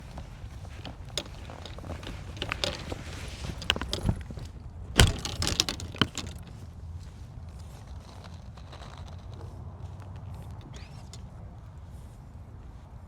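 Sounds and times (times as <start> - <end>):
golf equipment clinking and rattling: 0.0 - 11.3.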